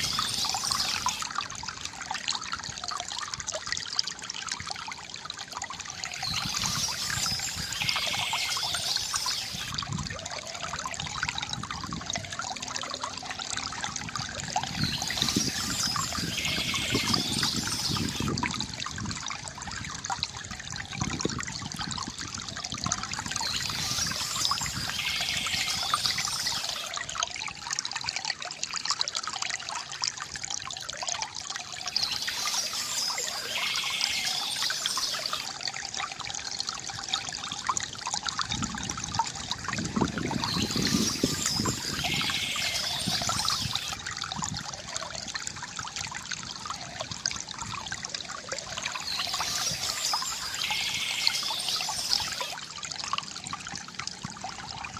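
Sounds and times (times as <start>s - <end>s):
water splashing: 0.0s - 2.0s
water trickling from bamboo fountain: 0.0s - 54.9s.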